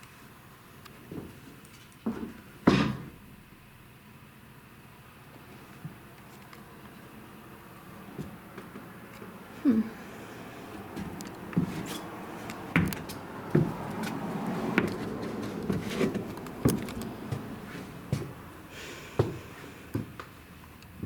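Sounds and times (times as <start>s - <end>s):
footsteps on floorboards: 8.1s - 9.3s, 10.8s - 18.5s, 19.2s - 20.4s.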